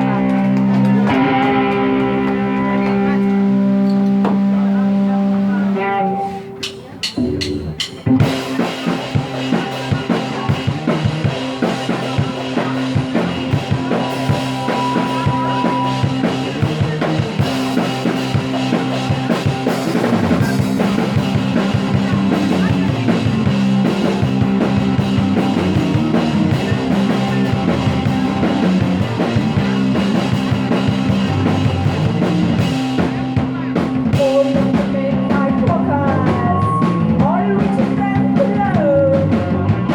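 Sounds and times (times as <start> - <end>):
instrumental rock music: 0.0 - 39.9
drum hits: 6.6 - 34.3.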